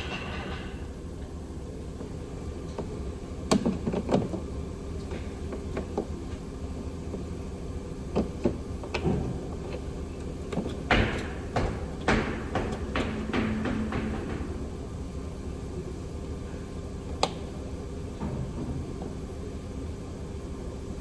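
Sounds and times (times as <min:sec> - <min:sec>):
low background hum: 0:00.0 - 0:21.0
tools knocking and clanking: 0:10.5 - 0:15.0.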